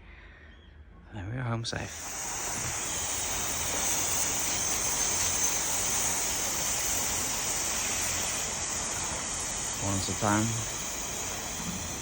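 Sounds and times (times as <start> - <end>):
water spraying from hose: 1.9 - 12.0.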